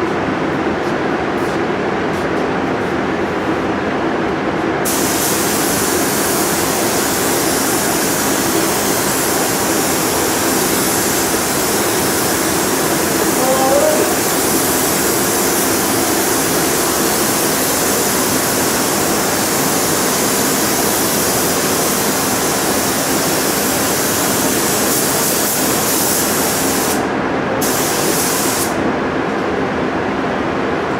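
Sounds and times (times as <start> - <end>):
paint spray gun hissing: 4.8 - 27.0, 27.6 - 28.8.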